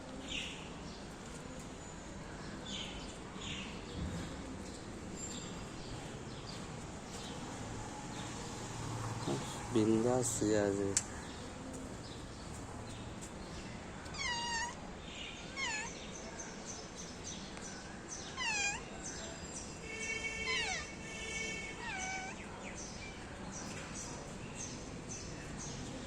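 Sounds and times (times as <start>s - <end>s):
cat meowing: 14.0s - 14.8s, 15.4s - 16.0s, 18.4s - 18.9s, 20.4s - 22.5s.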